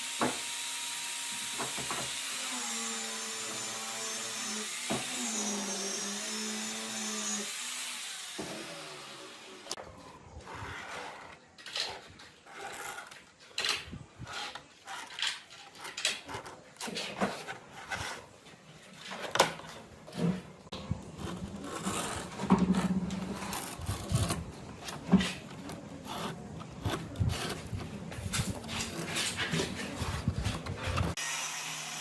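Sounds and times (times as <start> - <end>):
scraping and rubbing on wood: 10.4 - 31.2.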